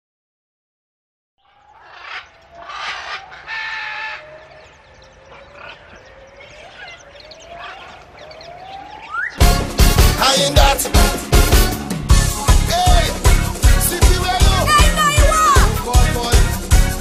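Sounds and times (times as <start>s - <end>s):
rising whistled bird call: 1.4s - 9.6s
bird chirping: 1.4s - 10.7s.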